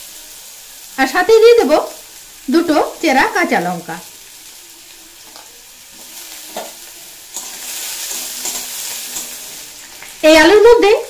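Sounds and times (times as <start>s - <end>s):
food sizzling in oil: 0.0s - 11.0s
metal spatula scraping pan: 5.9s - 9.9s.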